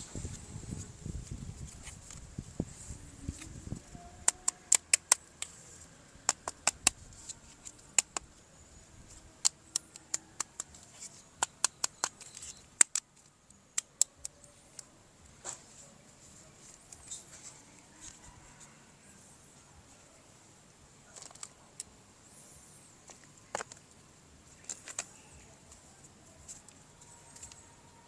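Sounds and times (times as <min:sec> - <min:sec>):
muffled low rustle: 0:00.0 - 0:04.1
plastic toy parts clicking: 0:04.2 - 0:05.6, 0:09.4 - 0:14.9, 0:21.2 - 0:21.9, 0:24.6 - 0:25.3.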